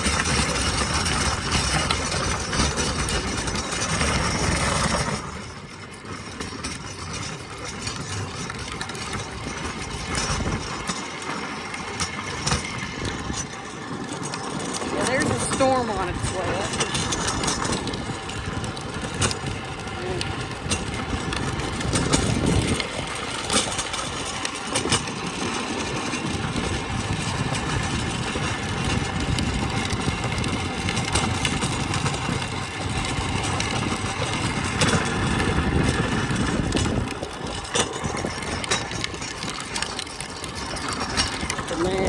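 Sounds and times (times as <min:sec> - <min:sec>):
trike rumbling over rough ground: 0:00.0 - 0:42.0
wind buffeting microphone: 0:06.6 - 0:42.0.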